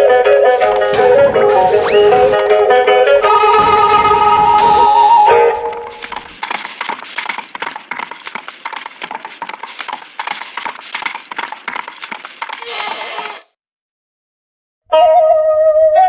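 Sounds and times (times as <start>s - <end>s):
rapid irregular clattering clicks: 0.5s - 12.6s.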